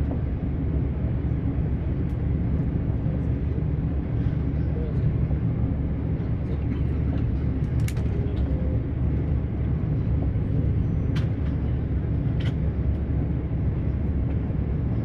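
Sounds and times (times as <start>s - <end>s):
train rumbling at speed: 0.0s - 15.0s
sharp clicks of train: 6.7s - 8.6s, 11.1s - 13.1s.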